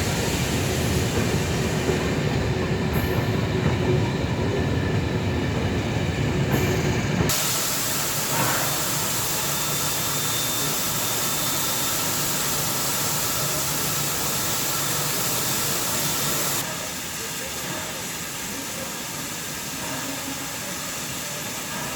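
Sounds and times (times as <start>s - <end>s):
steady hiss: 7.3s - 16.6s.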